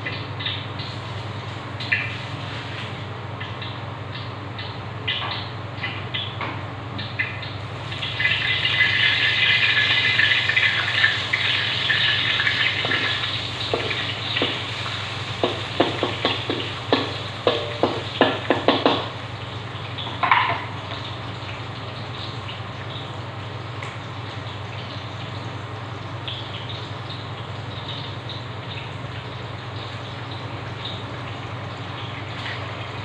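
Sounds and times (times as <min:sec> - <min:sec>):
food sizzling in hot oil: 0:07.6 - 0:23.1.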